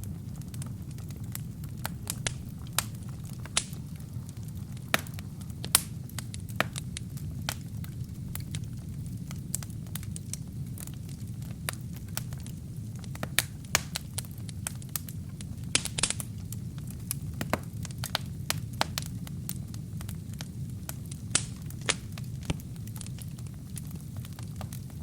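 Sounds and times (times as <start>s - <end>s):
low rumble of flames: 0.0s - 25.0s
wood fire crackling and popping: 0.0s - 25.0s.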